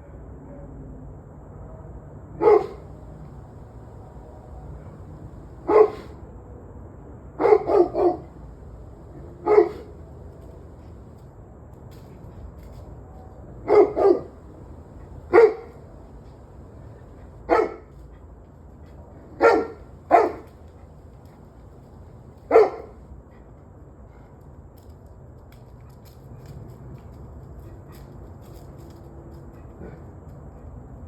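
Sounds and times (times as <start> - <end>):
low background hum: 0.0 - 31.0
dog barking: 2.4 - 3.1, 4.1 - 6.2, 7.4 - 10.1, 13.7 - 14.4, 15.0 - 15.9, 16.8 - 17.9, 19.4 - 20.6, 22.5 - 23.0.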